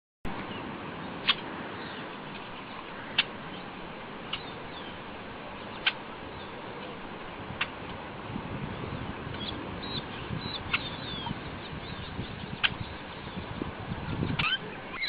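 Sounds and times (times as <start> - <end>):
steady background hiss: 0.3 - 15.0
small bird chirping: 1.2 - 5.0, 8.8 - 15.0.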